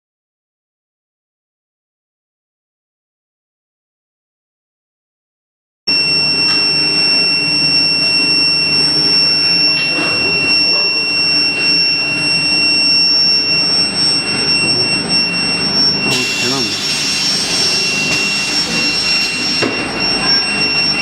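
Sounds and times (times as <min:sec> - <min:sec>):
high-pitched induction coil whine: 0:05.9 - 0:21.0.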